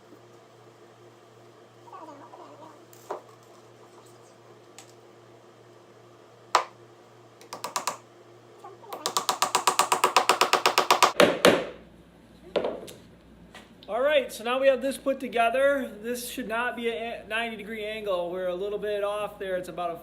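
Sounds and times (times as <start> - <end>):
sharp wooden knocks: 7.4 - 8.0, 9.0 - 11.8.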